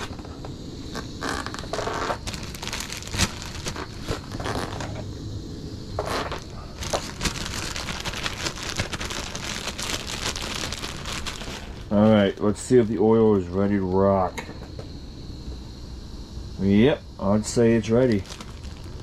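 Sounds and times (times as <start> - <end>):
rustling and crinkling flour: 1.0 - 5.1, 6.0 - 12.8, 17.9 - 19.0.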